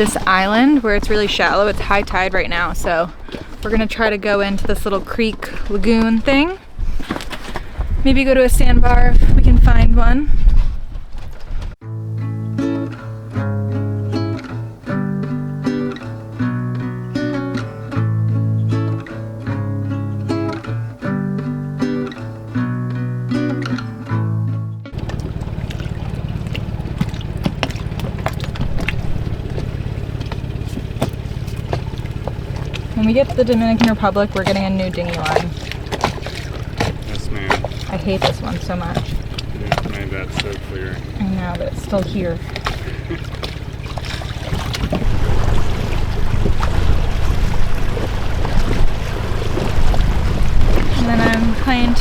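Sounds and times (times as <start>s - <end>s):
outboard motor running: 0.0s - 11.8s, 23.5s - 52.0s
water slapping against hull: 0.0s - 11.8s, 24.9s - 52.0s
wind buffeting microphone: 0.0s - 11.8s, 24.9s - 52.0s
guitar music: 11.8s - 44.4s, 45.0s - 52.0s.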